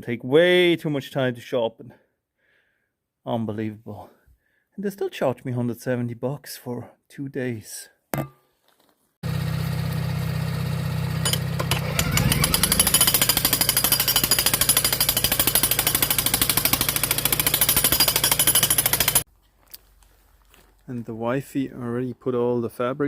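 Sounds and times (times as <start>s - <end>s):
jackhammer hammering rock: 9.2s - 19.3s.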